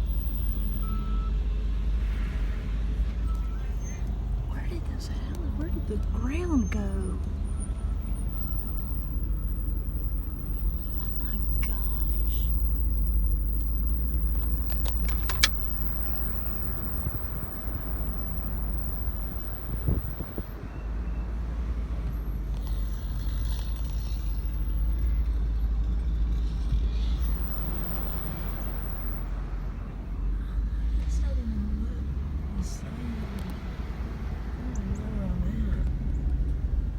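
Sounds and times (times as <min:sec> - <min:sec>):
car cabin road and engine rumble: 0:00.0 - 0:36.9
sharp clicks: 0:13.9 - 0:17.3.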